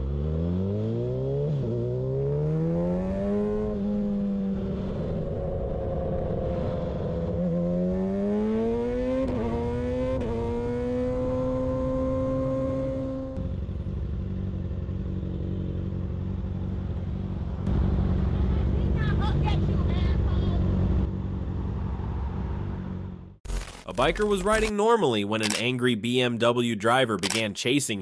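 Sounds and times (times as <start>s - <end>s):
motorcycle engine accelerating: 0.0s - 23.4s.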